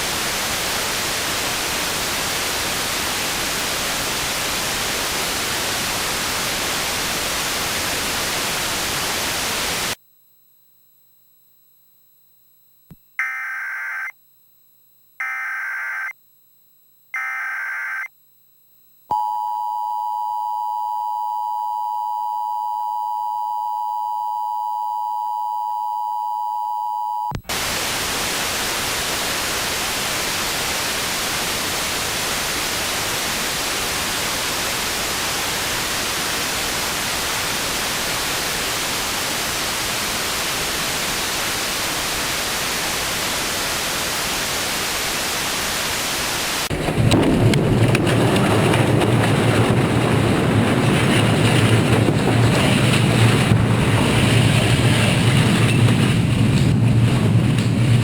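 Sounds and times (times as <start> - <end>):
static hiss: 0.0 - 10.4, 27.4 - 47.0
electronic beeps: 13.2 - 14.1, 15.2 - 16.1, 17.2 - 18.1, 19.1 - 27.4.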